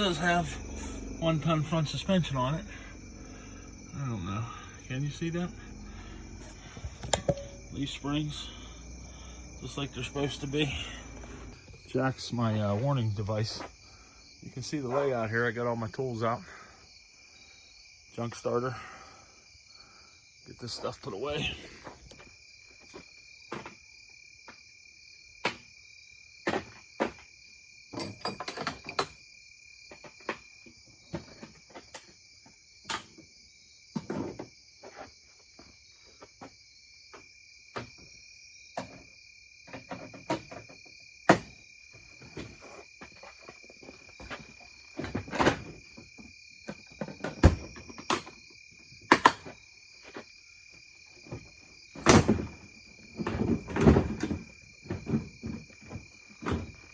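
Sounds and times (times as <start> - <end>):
crickets chirring: 0.0 - 56.9
hand tools clanking: 4.4 - 11.5, 28.0 - 29.1.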